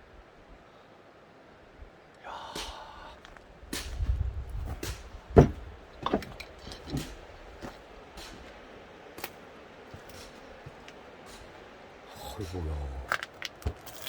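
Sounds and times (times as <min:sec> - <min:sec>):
irregular knocks and thumps: 0:03.8 - 0:08.6.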